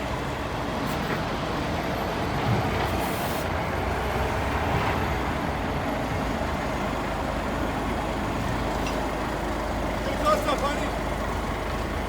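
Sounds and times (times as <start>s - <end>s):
diesel truck engine running: 3.5s - 12.0s.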